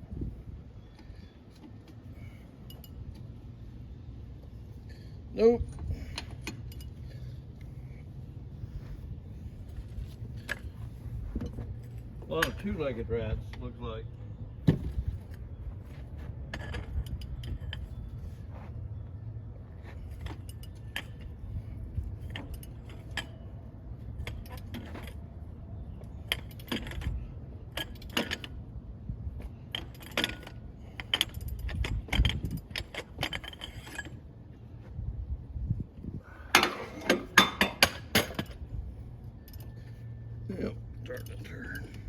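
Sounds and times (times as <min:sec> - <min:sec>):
steady low hum: 0:00.0 - 0:42.0
metal tools clinking and rattling: 0:04.7 - 0:07.4, 0:15.0 - 0:18.4, 0:19.8 - 0:28.7, 0:29.5 - 0:34.2, 0:36.5 - 0:38.6, 0:39.3 - 0:42.0.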